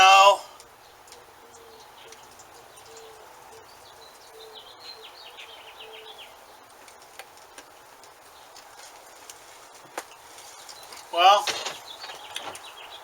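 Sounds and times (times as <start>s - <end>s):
songbird trilling: 0.8s - 6.7s.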